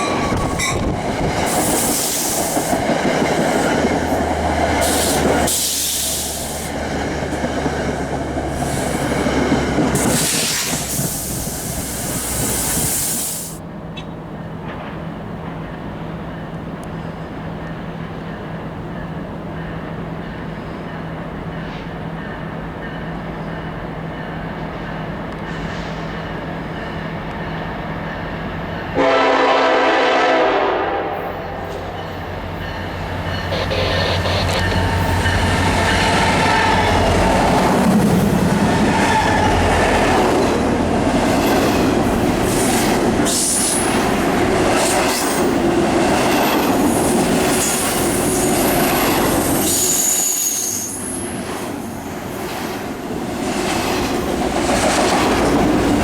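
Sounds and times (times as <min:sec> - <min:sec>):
train engine rumble: 0:00.0 - 0:56.0
locomotive horn blast: 0:29.0 - 0:32.0, 0:33.4 - 0:35.1
high wheel squeals: 0:49.5 - 0:51.3.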